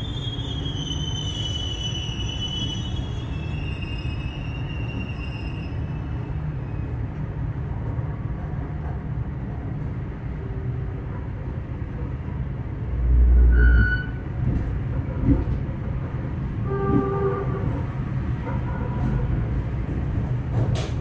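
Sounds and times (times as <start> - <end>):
passenger train rumbling: 0.0 - 21.0.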